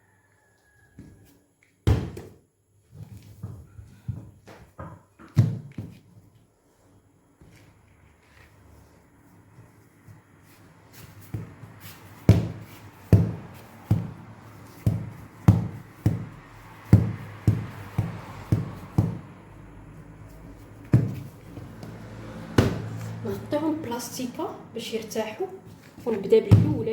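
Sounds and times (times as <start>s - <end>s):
dough thumping on work surface: 1.9s - 2.4s, 3.4s - 6.0s, 11.2s - 19.3s, 20.3s - 23.2s, 26.5s - 26.9s.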